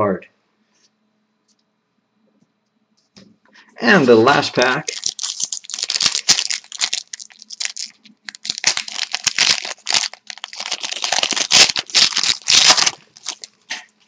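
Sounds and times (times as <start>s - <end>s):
wrapper being torn and crinkled: 4.5s - 13.6s.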